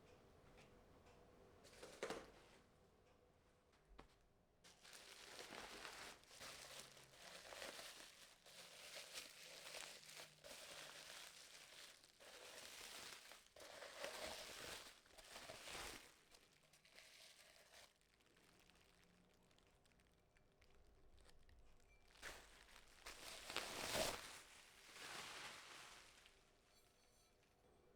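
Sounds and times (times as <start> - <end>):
faint crinkling and rustling: 1.6 - 2.7, 3.7 - 27.6.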